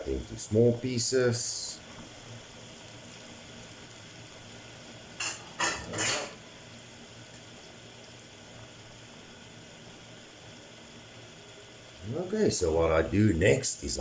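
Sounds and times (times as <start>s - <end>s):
seafood frying in a pan: 0.0s - 14.0s
utensil scraping cookware: 5.2s - 6.4s.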